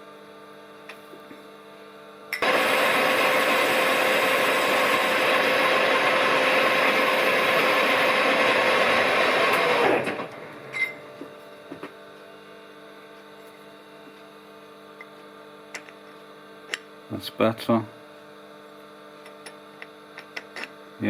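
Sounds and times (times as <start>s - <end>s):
lathe running and spinning down: 2.4s - 11.2s.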